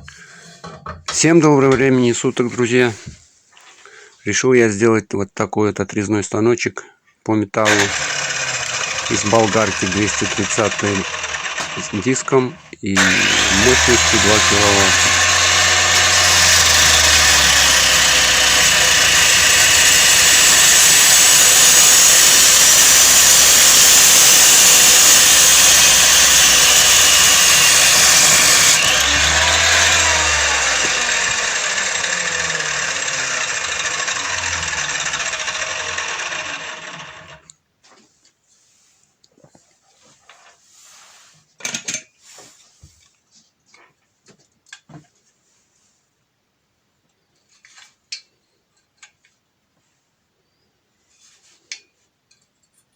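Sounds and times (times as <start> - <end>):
angle grinder whining: 7.6 - 37.5.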